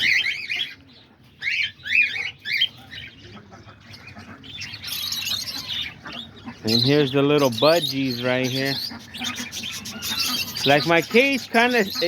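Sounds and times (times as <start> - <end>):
birds calling: 0.0 - 12.0
flock of birds chattering: 0.0 - 12.0.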